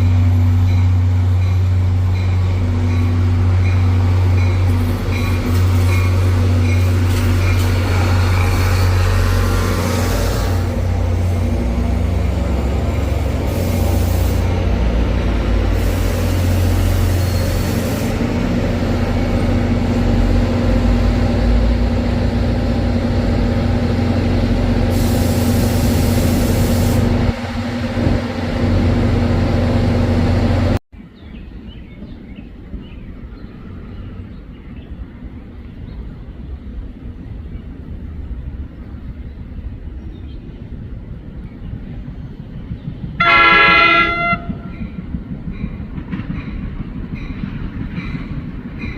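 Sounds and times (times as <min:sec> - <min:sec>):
diesel locomotive running: 0:00.0 - 0:30.8, 0:33.6 - 0:48.9
air brake hissing: 0:13.5 - 0:14.6, 0:15.7 - 0:18.2, 0:24.9 - 0:27.2
train horn: 0:43.2 - 0:44.8.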